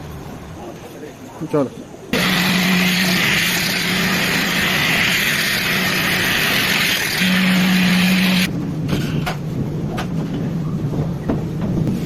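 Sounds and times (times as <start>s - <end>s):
carpet cleaning machine motor hum: 2.2s - 8.5s.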